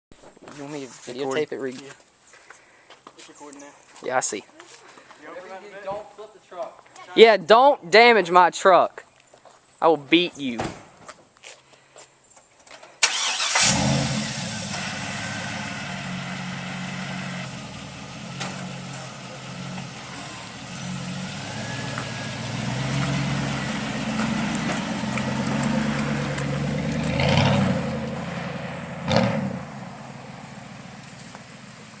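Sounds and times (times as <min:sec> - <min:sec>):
truck engine starting and pulling away: 0:13.0 - 0:32.0.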